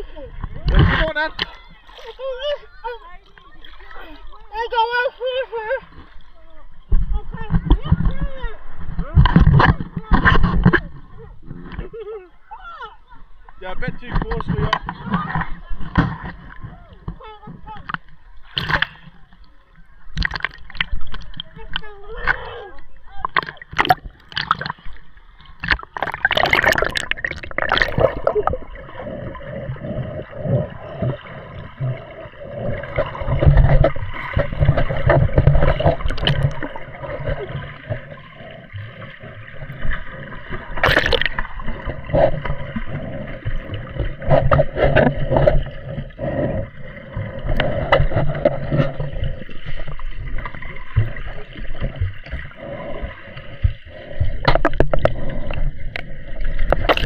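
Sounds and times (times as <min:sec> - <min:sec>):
seawater sloshing and gurgling: 0:00.0 - 0:57.0
sharp water splashes: 0:23.2 - 0:29.6, 0:30.6 - 0:52.8, 0:56.6 - 0:57.0.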